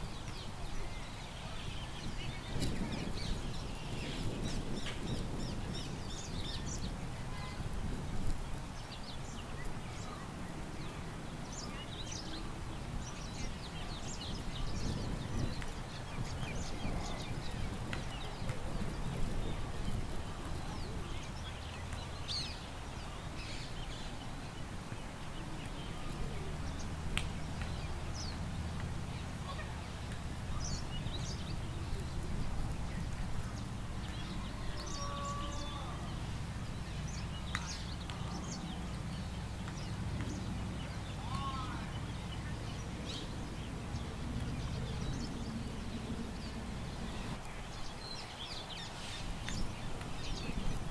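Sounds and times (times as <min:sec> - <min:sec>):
low rumble of wind: 0:00.0 - 0:50.9
bird chirps and calls: 0:33.5 - 0:50.8.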